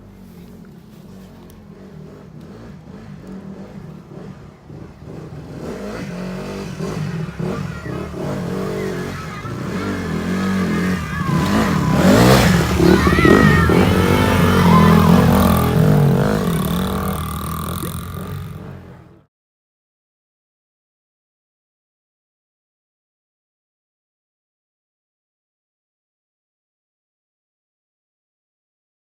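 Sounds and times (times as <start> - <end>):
dirt bike engine running: 0.0 - 19.2.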